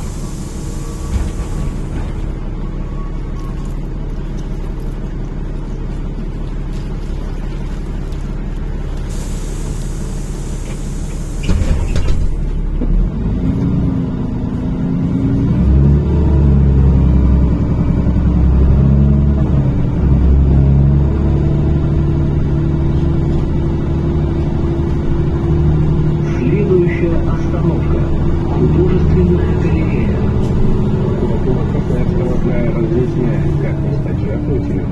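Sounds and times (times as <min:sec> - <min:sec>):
compressed air hiss: 0:00.0 - 0:01.9, 0:09.0 - 0:12.2
bus engine accelerating: 0:00.0 - 0:34.9.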